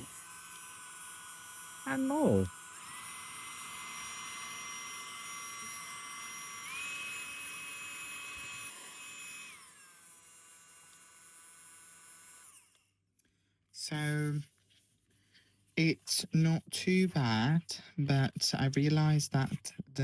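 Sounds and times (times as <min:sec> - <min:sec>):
hair dryer motor whine: 0:00.0 - 0:12.8.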